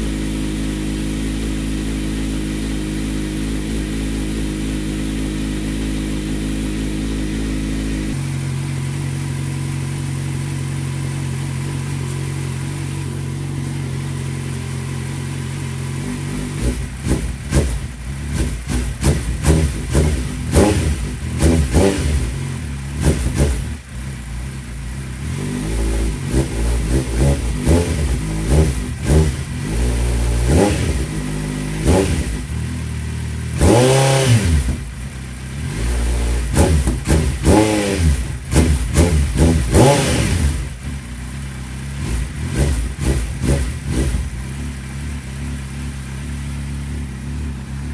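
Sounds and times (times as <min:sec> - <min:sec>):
motorcycle engine idling and revving: 0:00.0 - 0:47.9.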